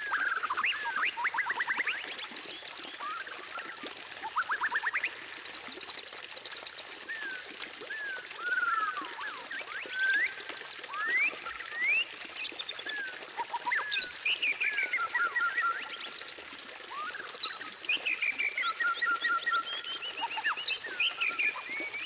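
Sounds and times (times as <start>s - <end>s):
bird singing whistles: 0.0s - 2.1s, 7.1s - 12.2s, 16.9s - 22.0s.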